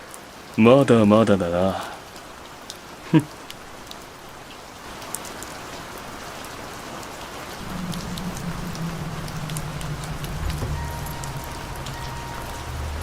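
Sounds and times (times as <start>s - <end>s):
steady rain falling: 0.0s - 13.0s
low steady hum: 7.6s - 13.0s.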